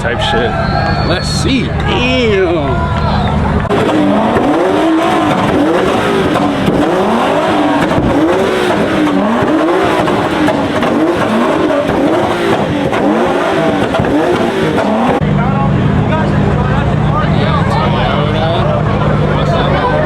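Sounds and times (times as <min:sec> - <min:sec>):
car engine revving: 0:00.0 - 0:20.0
tyre squeal: 0:00.2 - 0:02.1.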